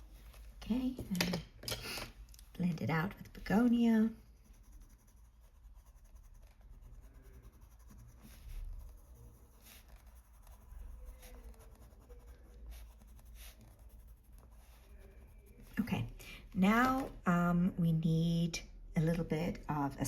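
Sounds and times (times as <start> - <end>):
pencil scratching on paper: 2.9 - 16.2.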